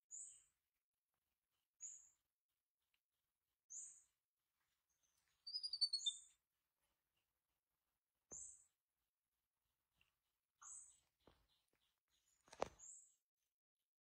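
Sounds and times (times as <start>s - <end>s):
descending bird twittering: 5.4s - 6.3s
high bird chirps: 5.5s - 6.3s.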